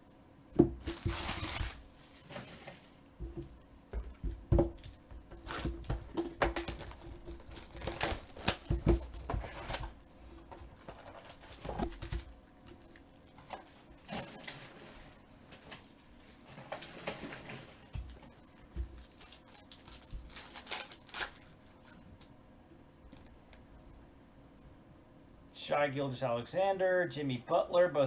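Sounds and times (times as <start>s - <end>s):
cards and wrapper crinkling: 0.8s - 3.0s, 5.5s - 13.1s, 18.0s - 22.3s
foil pack ripping open: 0.8s - 3.1s, 4.8s - 13.1s, 14.0s - 22.3s.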